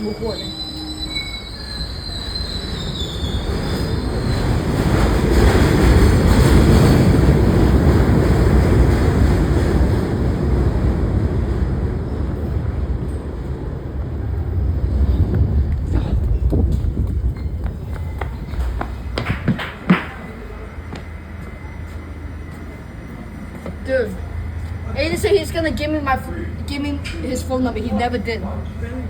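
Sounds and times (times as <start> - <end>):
train wheel squeal: 0.0 - 7.7, 17.3 - 19.1, 20.4 - 25.4
subway train rumble: 0.0 - 29.0.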